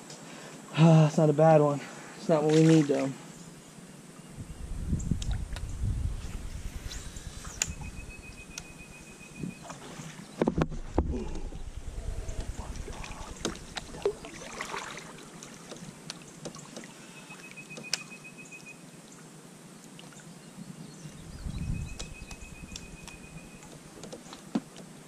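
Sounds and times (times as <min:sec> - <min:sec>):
faint water lapping: 0:08.4 - 0:17.9
knocks and clicks on a kayak: 0:10.4 - 0:11.4, 0:13.4 - 0:14.1, 0:23.0 - 0:24.9.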